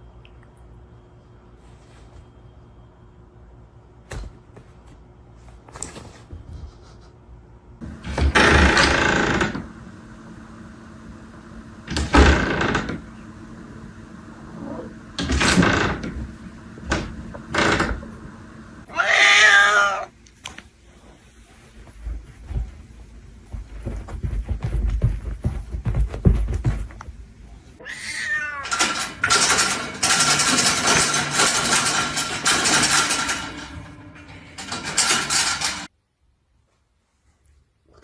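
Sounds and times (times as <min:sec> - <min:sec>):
cat meowing: 0:18.9 - 0:20.2, 0:27.8 - 0:28.8.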